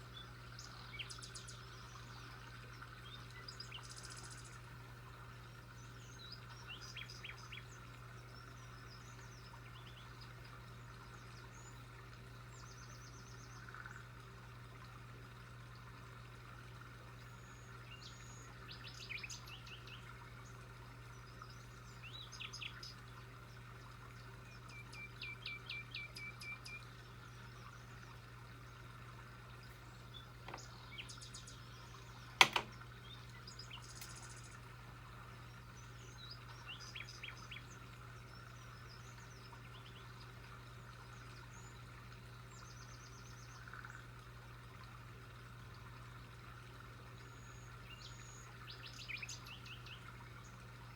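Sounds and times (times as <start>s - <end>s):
small birds chirping: 5.7s - 14.0s, 24.5s - 44.1s.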